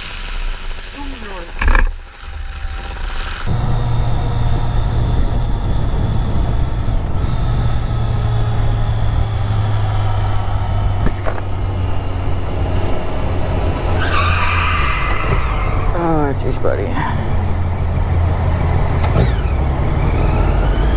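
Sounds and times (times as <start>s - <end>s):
rushing wind noise: 0.0s - 14.0s
motorcycle engine drone: 0.0s - 20.9s.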